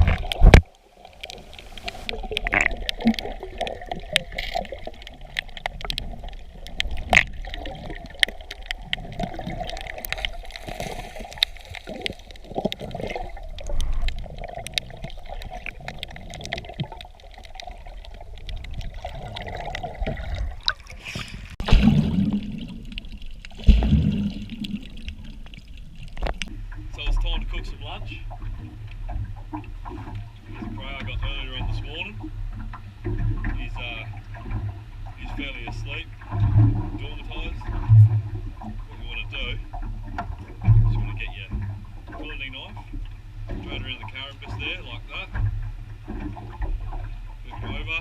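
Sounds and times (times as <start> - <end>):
water sloshing and trickling: 0.0 - 48.0.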